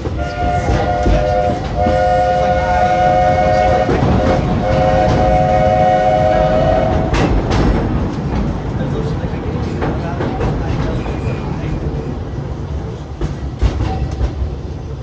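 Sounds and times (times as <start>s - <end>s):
train rumbling: 0.0s - 15.0s
steam locomotive whistle blasts: 0.2s - 7.3s.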